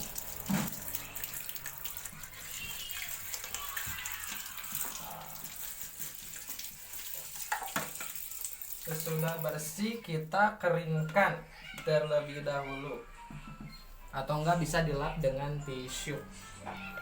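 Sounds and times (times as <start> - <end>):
toothbrush scrubbing: 0.0 - 9.4
tap water running: 0.0 - 10.0.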